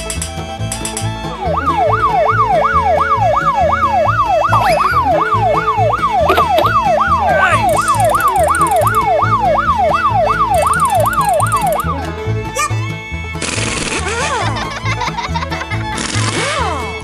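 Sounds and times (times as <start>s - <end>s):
yelp siren: 1.5s - 12.0s.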